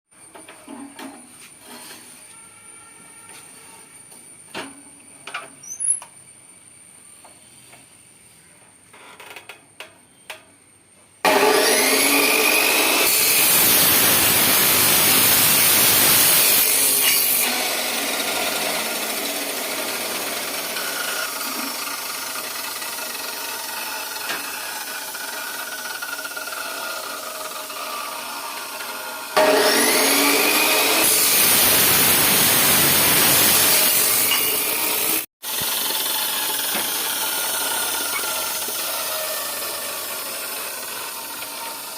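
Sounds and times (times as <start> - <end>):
chop saw cutting metal pipe: 11.2 - 41.9.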